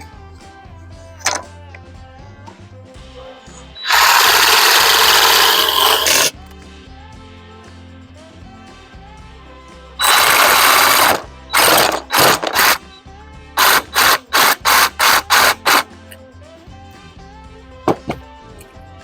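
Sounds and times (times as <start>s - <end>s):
background music: 0.0s - 19.0s
jigsaw cutting wood: 3.8s - 6.3s, 10.0s - 12.8s, 13.6s - 15.9s.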